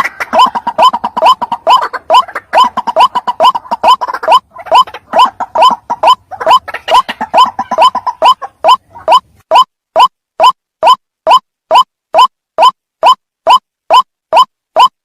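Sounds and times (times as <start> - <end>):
waterhen calling: 0.0 - 9.7.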